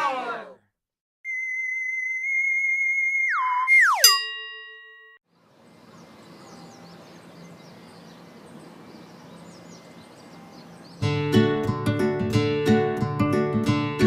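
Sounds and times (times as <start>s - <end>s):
held electronic tone: 1.3s - 5.1s
small birds chirping: 5.3s - 11.1s.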